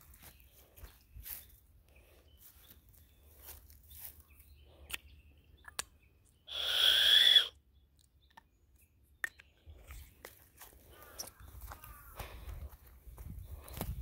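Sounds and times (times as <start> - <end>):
footsteps on dry leaves: 0.0 - 4.6.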